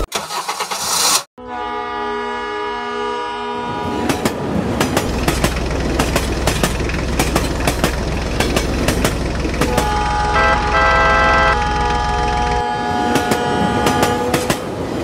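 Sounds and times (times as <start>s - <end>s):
train horn: 1.4s - 4.3s, 9.6s - 14.7s
train wheels clicking over rail joints: 4.1s - 10.2s, 11.9s - 15.0s.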